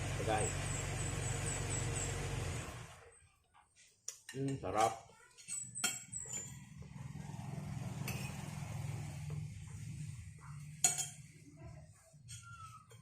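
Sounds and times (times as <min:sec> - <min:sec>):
cutlery clinking on dishware: 0:04.1 - 0:06.8, 0:08.0 - 0:08.6, 0:10.6 - 0:11.4, 0:12.2 - 0:13.0.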